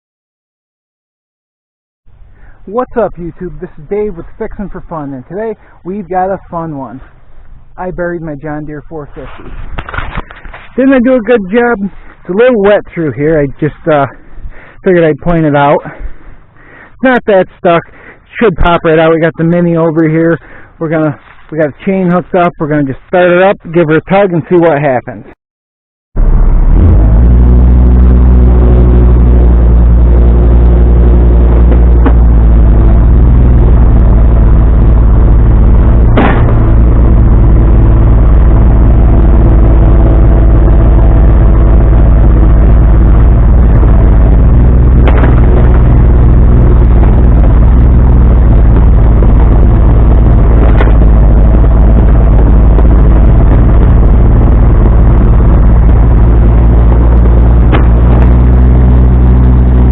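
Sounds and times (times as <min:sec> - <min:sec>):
diesel engine running: 0:02.1 - 0:23.2, 0:26.2 - 0:59.9
sharp knocks: 0:36.1 - 0:36.7, 0:45.0 - 0:45.8, 0:57.7 - 0:58.2.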